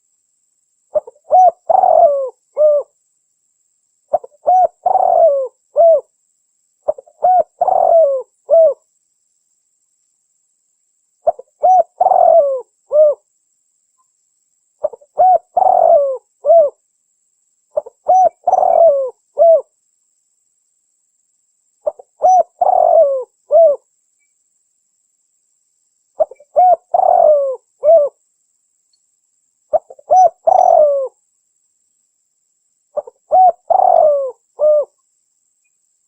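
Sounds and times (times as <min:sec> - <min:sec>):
dove cooing: 0:00.9 - 0:03.0, 0:04.1 - 0:06.1, 0:06.9 - 0:08.8, 0:11.2 - 0:13.2, 0:14.8 - 0:16.8, 0:17.8 - 0:19.7, 0:21.8 - 0:23.8, 0:26.2 - 0:28.2, 0:29.7 - 0:31.2, 0:33.0 - 0:35.0.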